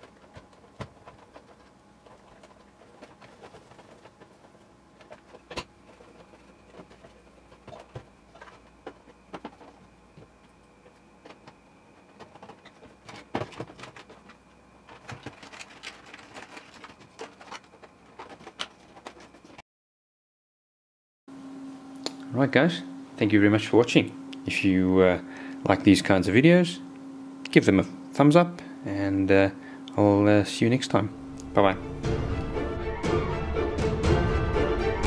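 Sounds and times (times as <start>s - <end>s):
plastic parts clicking and knocking: 11.2s - 19.6s.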